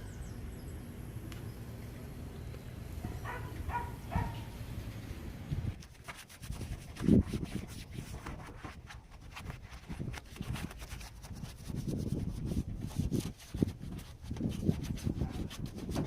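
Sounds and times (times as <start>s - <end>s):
rubbing and scrubbing strokes: 5.8s - 16.0s.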